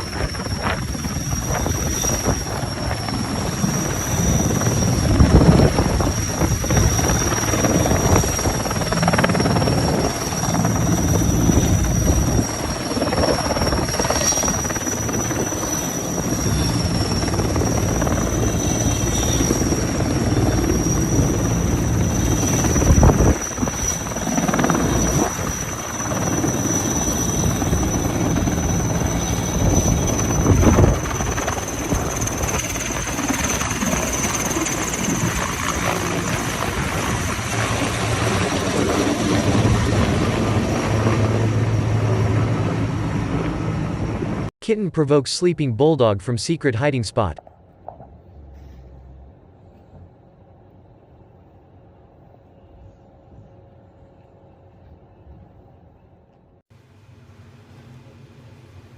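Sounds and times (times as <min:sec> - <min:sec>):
helicopter rotor blades beating: 0:00.0 - 0:44.5
helicopter turbine whine: 0:00.0 - 0:56.6.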